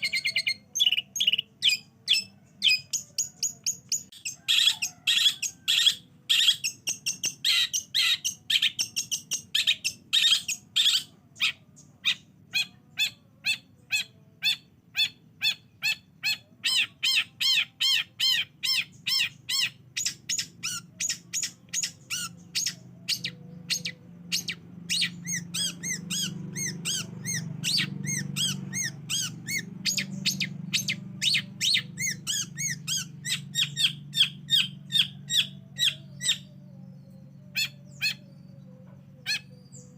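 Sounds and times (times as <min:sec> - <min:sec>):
shrike chirping song: 0:00.0 - 0:39.9.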